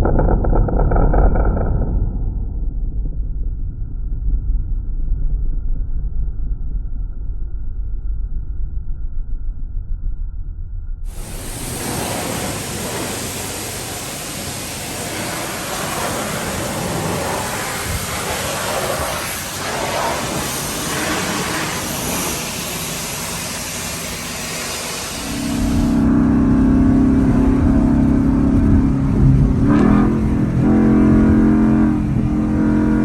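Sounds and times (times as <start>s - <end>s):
steady rushing noise: 11.1s - 33.0s.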